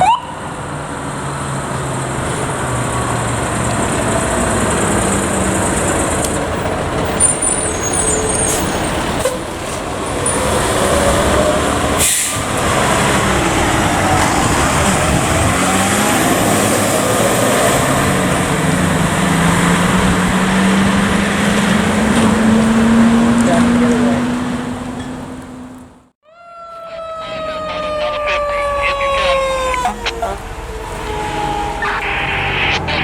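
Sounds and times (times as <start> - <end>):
short sharp hiss: 12.0 - 12.4.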